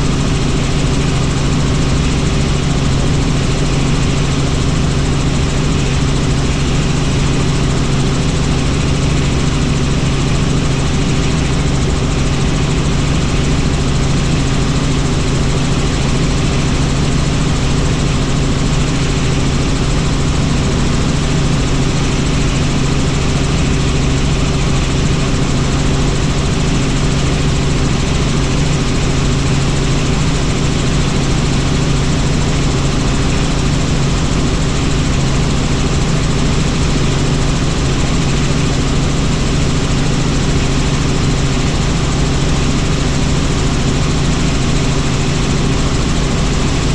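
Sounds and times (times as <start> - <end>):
helicopter flying: 0.0 - 46.9.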